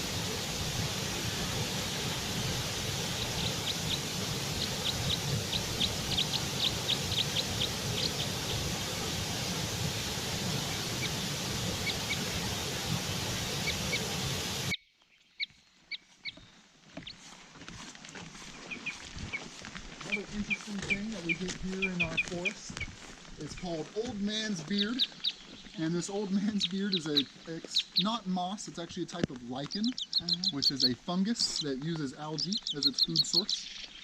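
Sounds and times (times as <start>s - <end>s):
steady hissing rush: 0.0s - 14.7s
small birds chirping: 0.0s - 17.4s, 18.4s - 34.0s.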